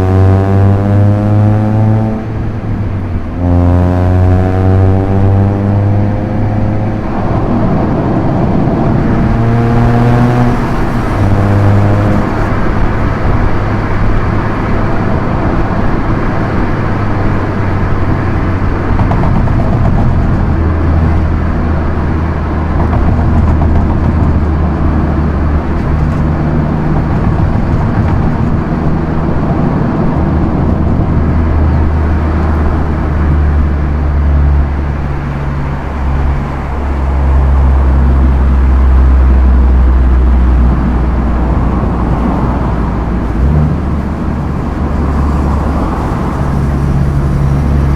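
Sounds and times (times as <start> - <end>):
car engine cruising: 0.0 - 47.9
tyre and road noise: 0.0 - 47.9.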